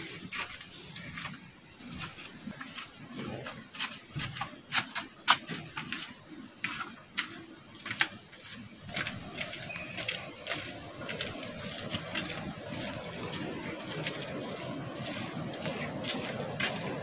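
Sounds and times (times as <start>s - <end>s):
small birds chirping: 8.4s - 13.1s.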